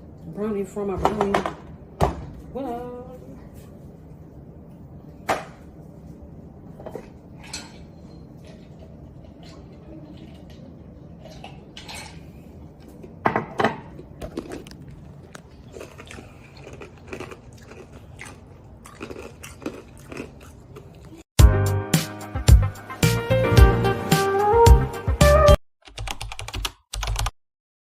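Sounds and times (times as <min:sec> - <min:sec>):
person chewing food: 0:14.2 - 0:21.3
music: 0:21.4 - 0:25.6.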